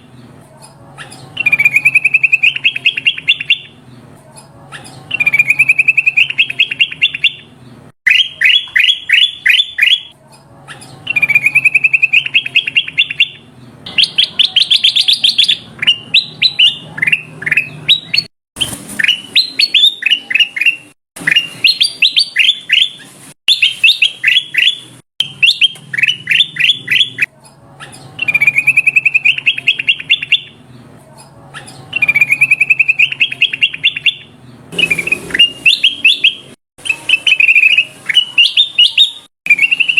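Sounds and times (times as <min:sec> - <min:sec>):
bulbul calling: 0:01.0 - 0:03.7, 0:08.1 - 0:18.3, 0:19.0 - 0:30.6, 0:31.6 - 0:39.9.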